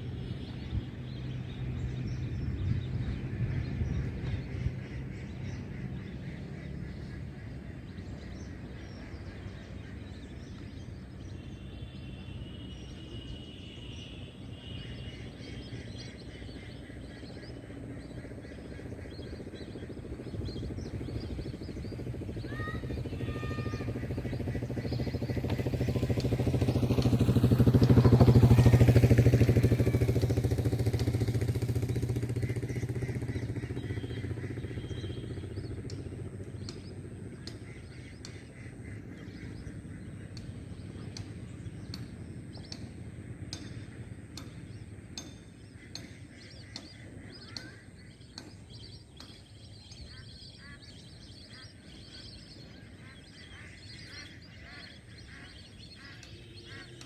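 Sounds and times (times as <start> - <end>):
vehicle engine passing by: 0.0 - 45.1.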